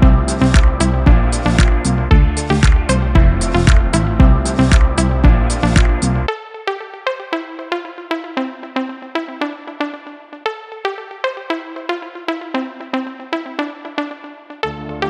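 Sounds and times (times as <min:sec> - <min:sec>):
electronic bass and beat: 0:00.0 - 0:06.3
repeating synth notes: 0:00.0 - 0:06.8.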